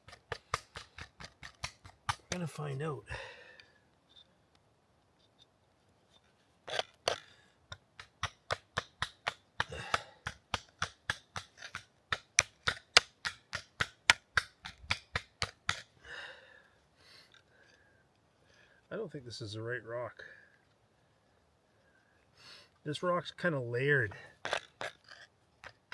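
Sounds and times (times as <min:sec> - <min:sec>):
hatchet clacking on stone: 0:00.0 - 0:02.4, 0:06.7 - 0:15.9
stone scraping: 0:06.6 - 0:07.3, 0:24.4 - 0:25.9.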